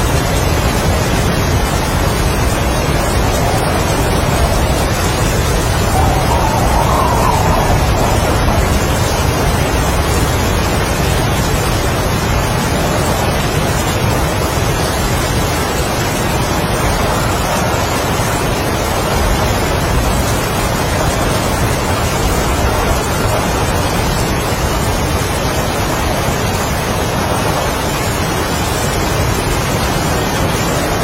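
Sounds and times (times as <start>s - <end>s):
heavy rain: 0.0s - 31.0s
strong wind gusts: 0.0s - 31.0s.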